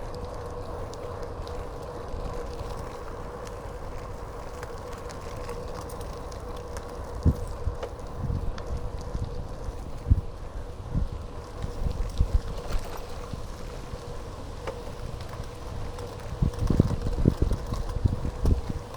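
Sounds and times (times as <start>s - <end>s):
wind rumbling on microphone: 0.0s - 18.9s.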